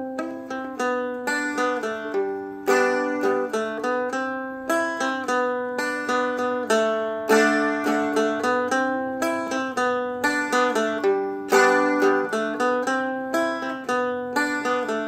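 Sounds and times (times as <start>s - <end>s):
plucked dulcimer melody: 0.0s - 15.0s
strummed chord: 0.0s - 15.0s.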